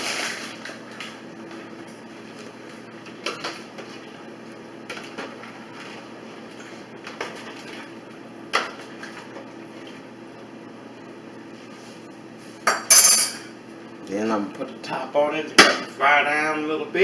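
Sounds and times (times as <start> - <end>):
utensils knocking against pot: 12.7 - 13.5.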